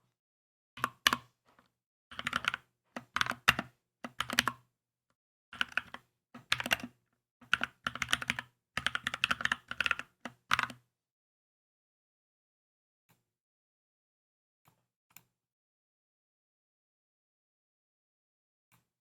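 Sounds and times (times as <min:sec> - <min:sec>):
mechanical keyboard typing: 0:02.1 - 0:04.6, 0:05.6 - 0:10.8.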